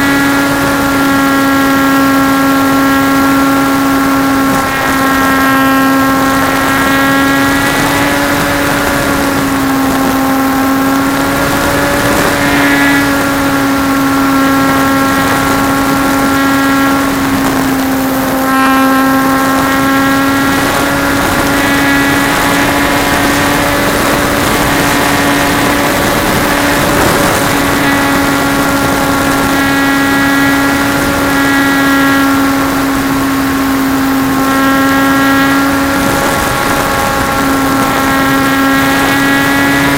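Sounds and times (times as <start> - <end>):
model plane motor droning: 0.0 - 39.9
wind rush: 0.0 - 39.9.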